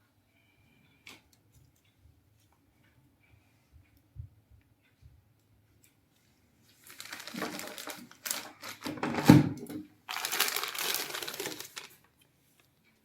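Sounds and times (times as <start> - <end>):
packaging crinkling and rustling: 6.7 - 12.3.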